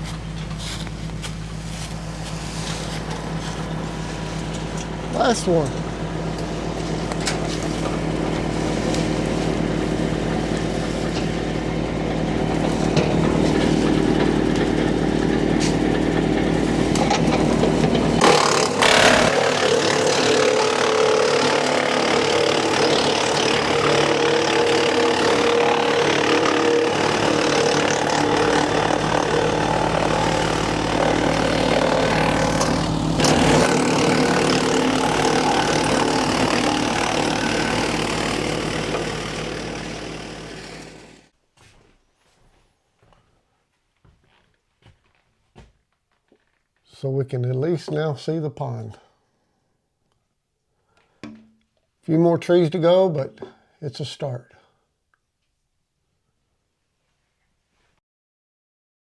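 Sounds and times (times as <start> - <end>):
wood chipper engine running: 0.0 - 41.3.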